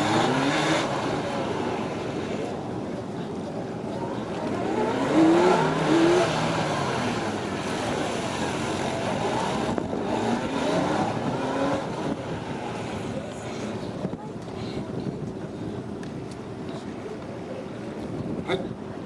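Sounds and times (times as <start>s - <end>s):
motorcycle engines revving: 0.0s - 14.3s.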